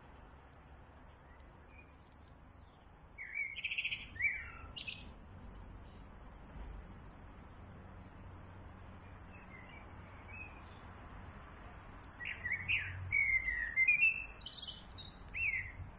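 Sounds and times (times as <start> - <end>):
small birds chirping and trilling: 1.1 - 15.9
faint high bird calls: 1.2 - 6.8, 12.1 - 15.8.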